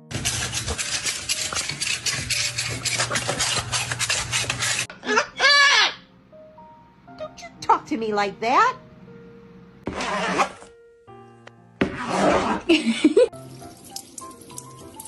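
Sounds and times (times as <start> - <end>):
rapid scratching and rubbing: 0.0 - 4.9.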